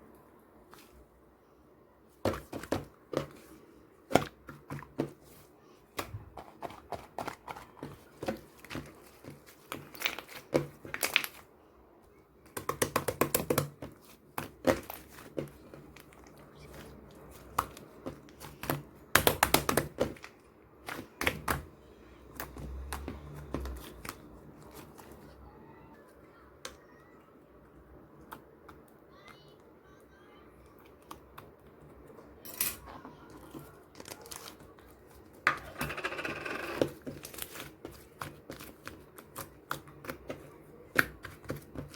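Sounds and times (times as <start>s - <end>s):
rapid crackling of slime: 2.2s - 11.6s, 12.4s - 26.4s, 33.2s - 35.8s, 36.8s - 41.9s.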